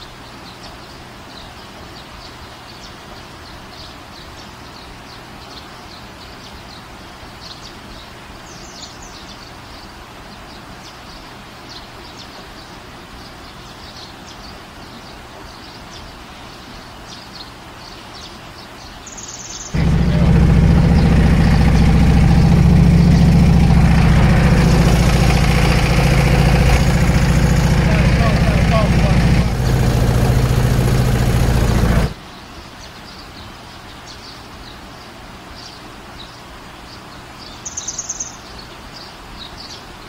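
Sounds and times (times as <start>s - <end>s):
steady background hiss: 0.0s - 19.7s
small birds chirping: 0.0s - 40.0s.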